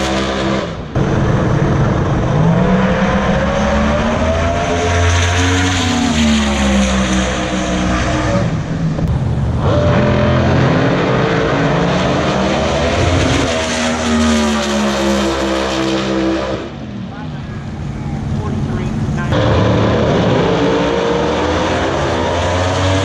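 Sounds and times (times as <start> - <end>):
racing car engines running: 0.0 - 23.0.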